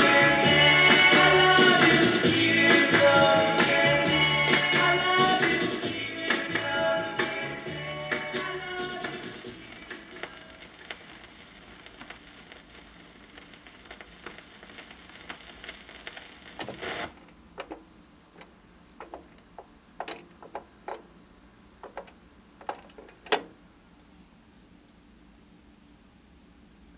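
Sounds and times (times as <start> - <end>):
doo-wop song from vinyl: 0.0 - 17.2
vinyl surface noise: 0.0 - 24.2
vinyl clicks and pops: 8.1 - 17.8, 18.4 - 21.1, 21.8 - 23.5.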